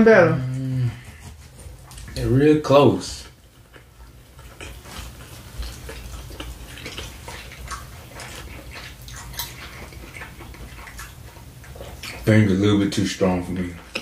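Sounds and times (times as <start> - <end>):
chewing and mouth sounds: 0.4 - 14.0.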